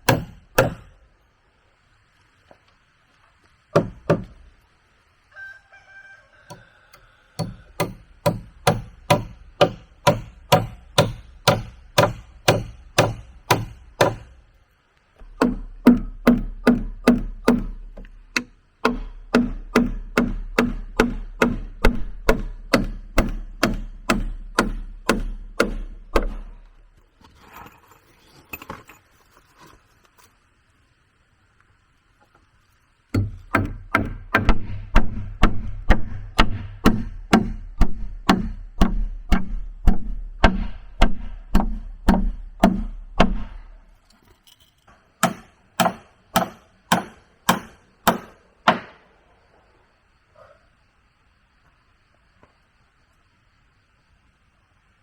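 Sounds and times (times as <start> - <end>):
tool striking wood: 0.0 - 0.9, 3.7 - 4.5, 7.4 - 14.4, 15.2 - 26.6, 33.1 - 43.8, 45.2 - 49.0.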